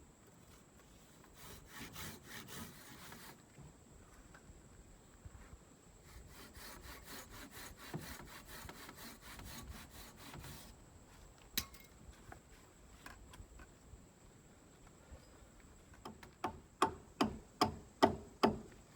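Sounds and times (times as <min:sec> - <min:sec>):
hand saw cutting wood: 0:01.3 - 0:03.4, 0:06.1 - 0:10.8.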